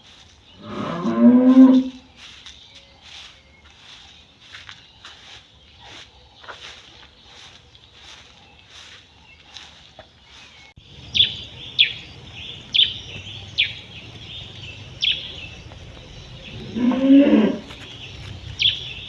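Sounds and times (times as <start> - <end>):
bird chirping: 0.1 - 19.0
cow mooing: 0.6 - 2.0, 13.8 - 17.8.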